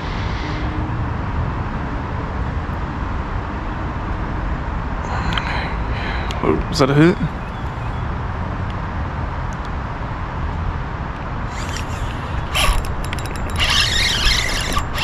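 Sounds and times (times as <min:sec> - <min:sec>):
fishing reel cranking and clicking: 0:11.5 - 0:15.0.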